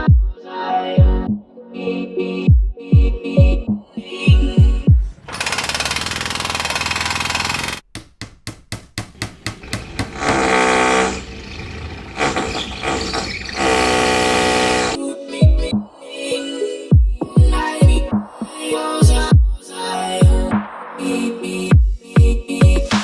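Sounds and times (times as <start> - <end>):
power tool motor whine: 5.3 - 7.8, 9.6 - 15.0
sharp knocks: 5.3 - 11.4, 12.2 - 15.0.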